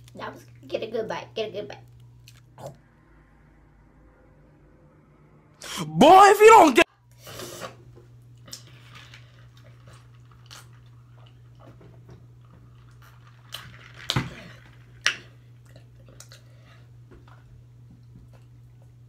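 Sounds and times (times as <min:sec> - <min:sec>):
steady low hum: 0:00.0 - 0:06.0
person chewing crunchy chips: 0:08.4 - 0:11.7.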